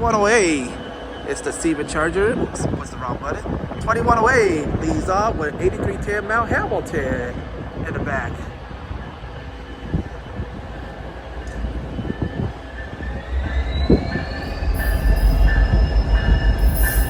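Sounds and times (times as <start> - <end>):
train rumble: 0.0 - 17.0
faint rising whine: 13.3 - 17.0.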